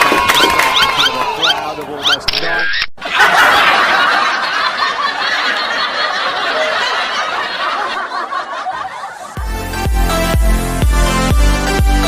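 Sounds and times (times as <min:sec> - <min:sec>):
crowd cheering and shouting: 0:00.0 - 0:02.0
electronic dance music: 0:09.4 - 0:12.0.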